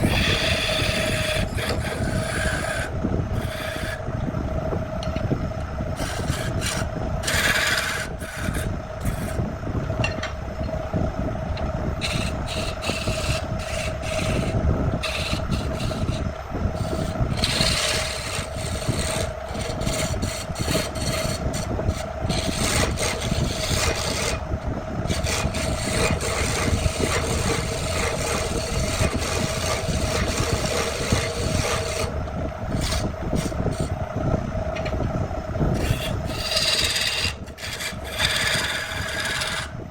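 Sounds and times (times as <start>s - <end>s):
machine hum: 0.0s - 39.9s
abrasive rubbing on wood: 35.8s - 39.7s.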